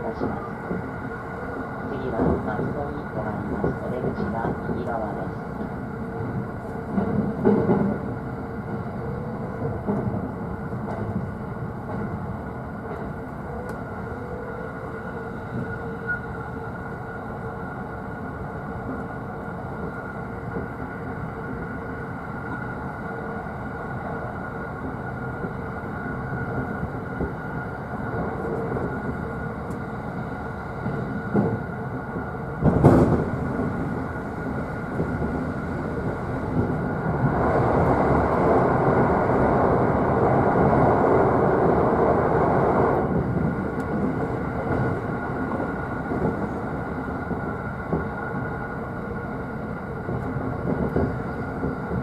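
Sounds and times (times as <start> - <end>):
train rolling rumble: 0.0 - 52.0.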